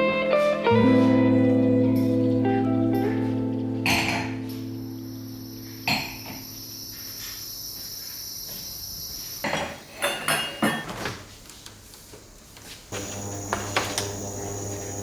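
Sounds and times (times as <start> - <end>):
steady high chirring: 0.8 - 9.4, 13.0 - 15.0.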